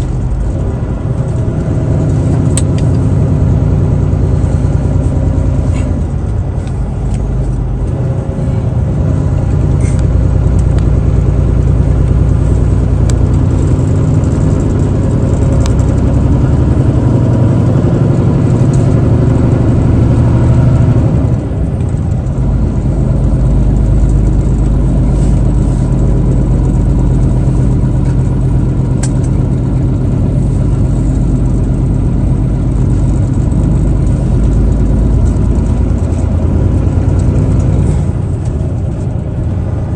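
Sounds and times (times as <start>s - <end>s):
road noise: 0.0s - 39.9s
truck engine running: 0.0s - 39.9s.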